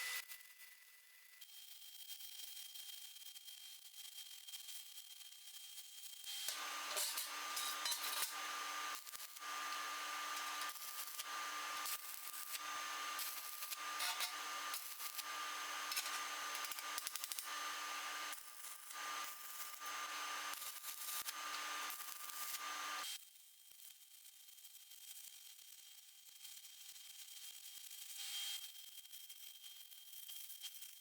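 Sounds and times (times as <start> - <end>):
welding arc crackling: 6.5 - 18.3.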